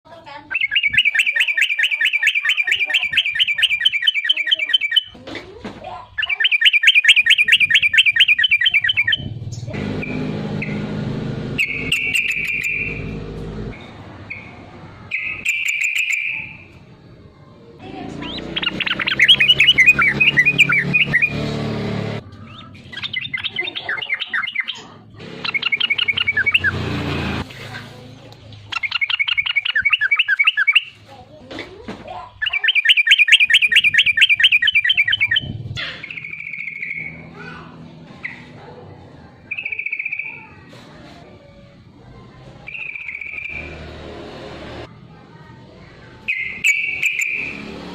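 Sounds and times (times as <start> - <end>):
bird chattering song: 0.3 - 5.2, 5.9 - 10.9, 11.5 - 16.8, 17.9 - 21.4, 22.3 - 26.9, 28.6 - 31.1, 32.2 - 37.4, 39.4 - 40.6, 42.6 - 43.8, 46.2 - 47.7.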